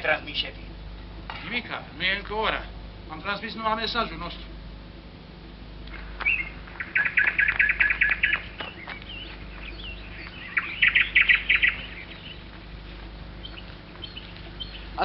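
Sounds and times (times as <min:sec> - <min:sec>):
songbirds chirping: 0:00.0 - 0:15.0
rapid bird trills: 0:05.9 - 0:15.0.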